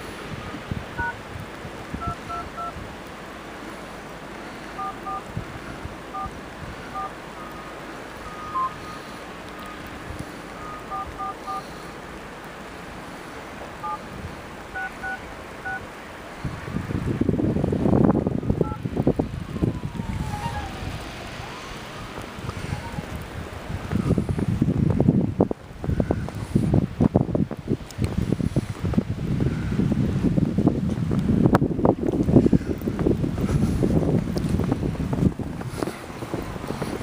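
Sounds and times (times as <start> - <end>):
wind noise on microphone: 0.0 - 12.0, 13.2 - 37.0
telephone keypad beeps: 2.0 - 2.8, 4.8 - 5.2, 6.1 - 6.3, 6.9 - 7.7, 8.3 - 9.0, 10.6 - 11.6, 14.8 - 15.8.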